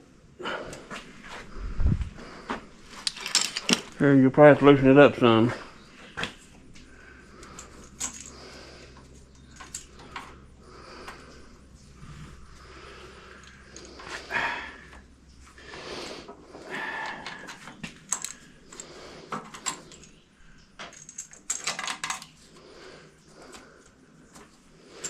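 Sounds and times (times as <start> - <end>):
metal tools clinking and rattling: 2.9 - 5.6, 7.4 - 10.4, 13.3 - 14.4, 16.8 - 20.2, 20.8 - 22.4.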